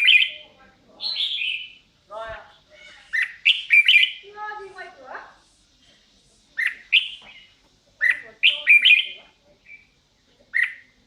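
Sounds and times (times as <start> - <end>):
bird warbling: 0.0 - 1.8, 2.7 - 4.3, 6.6 - 9.9, 10.5 - 10.9
bird chirping: 0.0 - 1.9, 2.6 - 4.3, 6.6 - 11.0.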